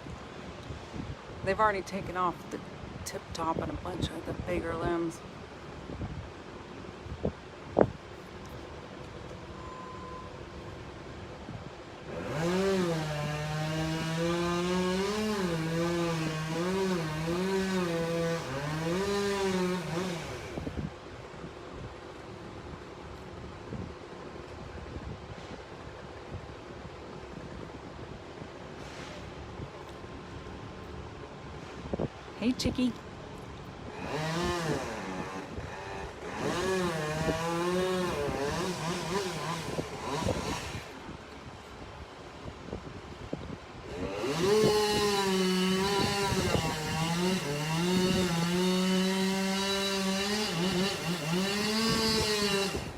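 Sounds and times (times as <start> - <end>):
chainsaw cutting through trunk: 12.0 - 20.9, 33.8 - 41.2, 43.8 - 52.9.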